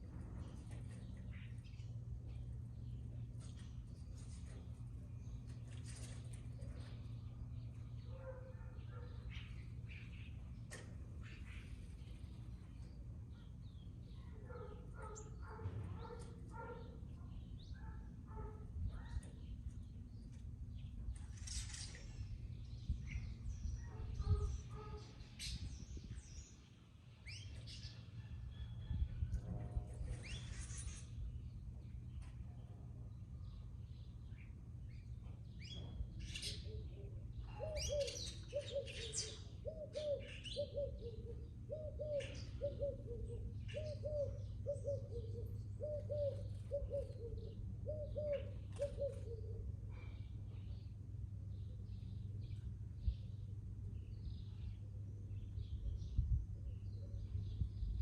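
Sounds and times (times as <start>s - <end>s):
small birds chirping: 0.0s - 28.1s, 30.2s - 58.0s
birds chirping: 5.2s - 28.0s
dog barking: 8.1s - 9.3s, 14.4s - 17.0s, 17.8s - 19.3s, 23.8s - 25.1s.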